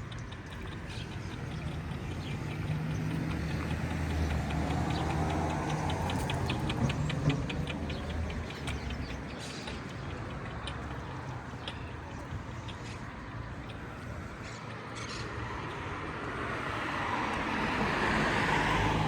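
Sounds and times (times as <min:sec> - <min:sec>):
vehicle engine passing: 0:00.0 - 0:12.3
rapid high-pitched ticks: 0:00.0 - 0:15.2.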